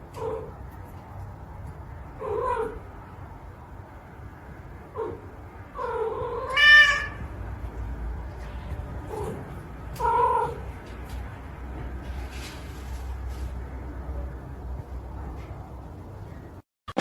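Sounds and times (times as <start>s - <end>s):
cat meowing: 5.8s - 7.3s.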